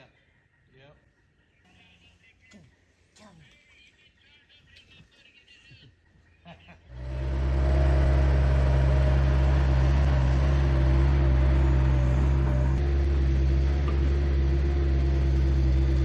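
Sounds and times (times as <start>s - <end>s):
engine droning: 6.8s - 16.0s.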